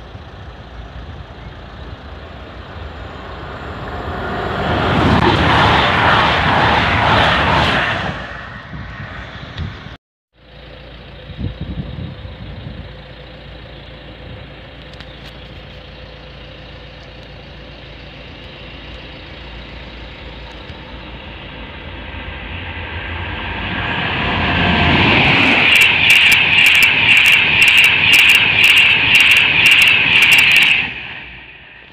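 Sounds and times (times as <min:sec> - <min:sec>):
train passing at speed: 0:00.0 - 0:10.0, 0:17.8 - 0:31.9.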